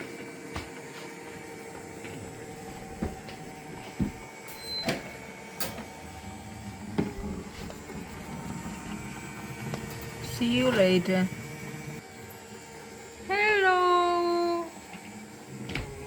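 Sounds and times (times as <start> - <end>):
robot cleaner motor whir: 5.8 - 16.0.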